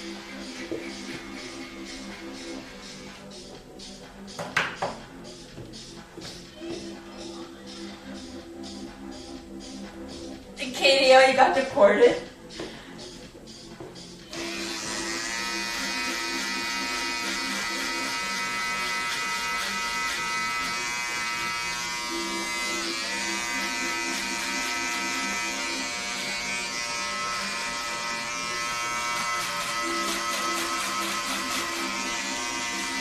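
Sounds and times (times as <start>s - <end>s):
electric hair clippers buzzing: 14.3s - 33.0s.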